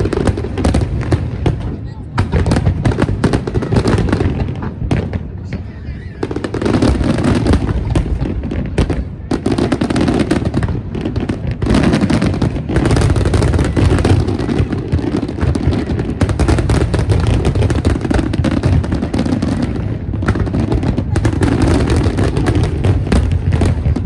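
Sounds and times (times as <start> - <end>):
fireworks banging and crackling: 0.0 - 24.0.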